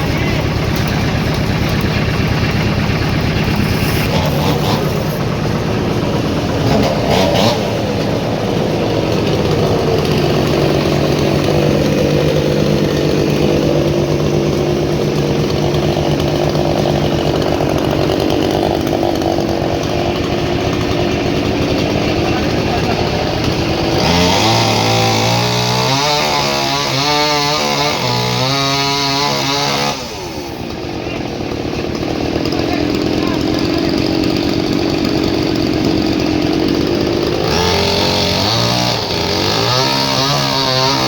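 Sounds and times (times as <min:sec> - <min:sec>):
engine hum: 0:00.0 - 0:27.0
saw cutting wood: 0:00.0 - 0:41.0.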